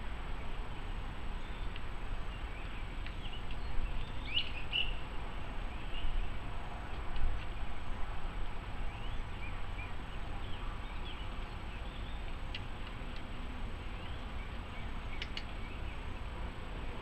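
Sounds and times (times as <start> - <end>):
low outdoor rumble: 0.0 - 17.0
sharp clicks: 15.2 - 15.6.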